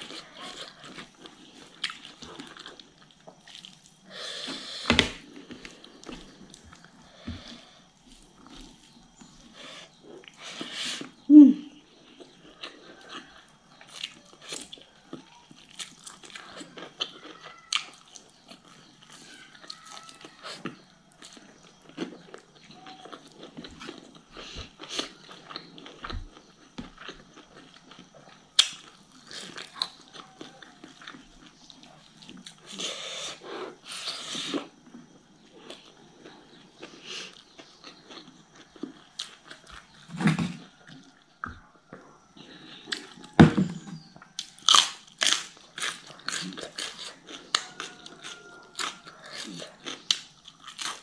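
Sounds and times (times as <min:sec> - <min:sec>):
person chewing food: 0:00.0 - 0:11.2, 0:11.8 - 0:51.0
small crunches: 0:42.0 - 0:51.0.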